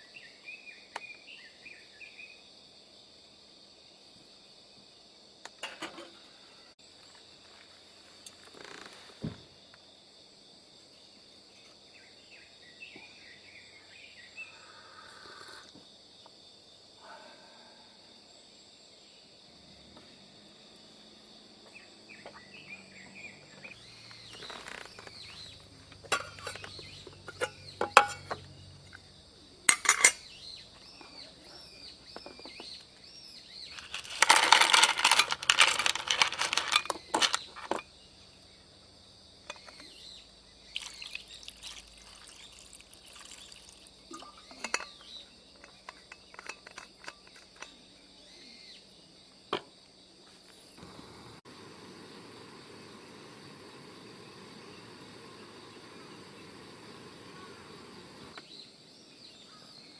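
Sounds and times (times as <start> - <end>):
metal cookware clinking: 26.0 - 28.4, 29.7 - 30.3, 44.1 - 47.7.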